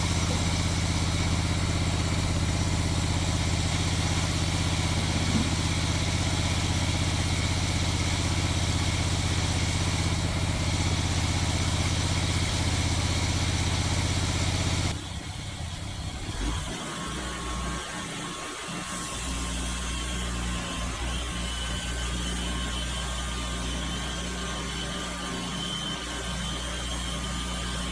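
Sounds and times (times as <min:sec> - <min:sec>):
low mechanical hum: 0:00.0 - 0:27.9
sawmill engine running: 0:00.0 - 0:27.9.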